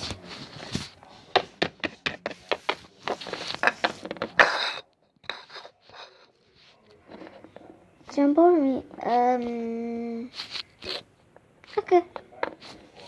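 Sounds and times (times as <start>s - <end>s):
plastic toys tapping on hard surface: 1.4s - 2.8s.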